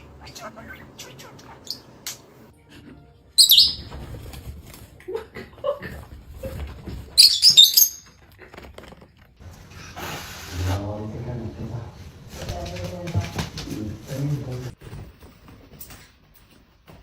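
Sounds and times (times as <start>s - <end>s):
parrot chirping: 0.0s - 2.5s, 3.4s - 3.9s, 7.2s - 8.2s.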